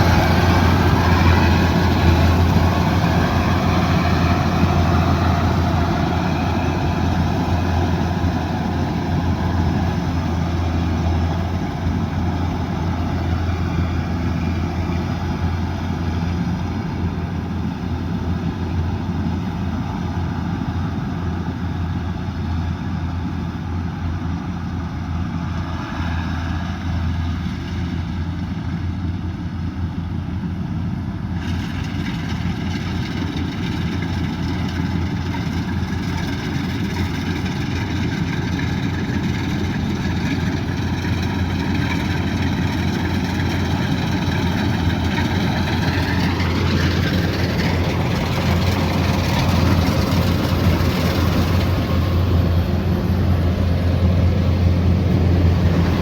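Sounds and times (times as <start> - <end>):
machinery noise: 0.0 - 18.3, 34.1 - 56.0
diesel engine humming: 0.0 - 25.6, 30.0 - 56.0.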